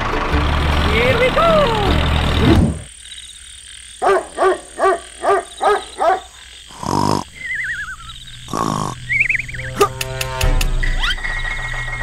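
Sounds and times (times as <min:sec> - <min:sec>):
longer buzzy animal call: 0:06.7 - 0:09.9.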